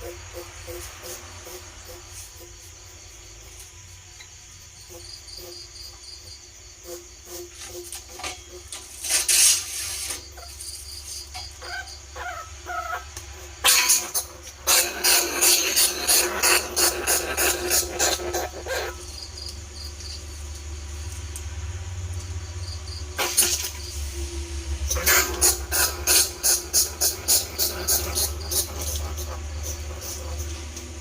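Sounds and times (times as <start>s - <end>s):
rat squeaking: 6.8s - 20.3s, 24.9s - 30.8s
steady low hum: 10.5s - 31.0s.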